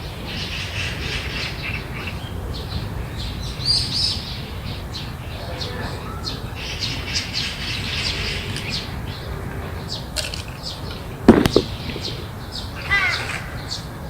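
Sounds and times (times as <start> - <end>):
loud thump or flap: 11.3 - 12.1.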